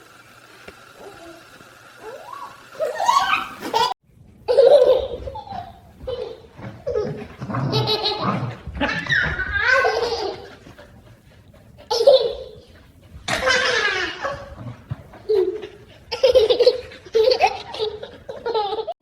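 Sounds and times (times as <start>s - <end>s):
baby laughing and giggling: 2.0s - 10.7s, 13.3s - 14.6s, 15.2s - 19.0s.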